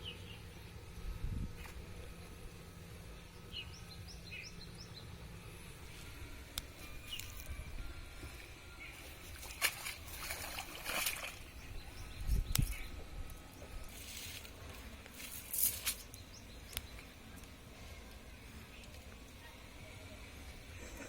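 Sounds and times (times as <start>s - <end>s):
outdoor background noise: 0.0s - 21.0s
water sloshing and splashing: 9.0s - 11.7s, 13.9s - 16.1s.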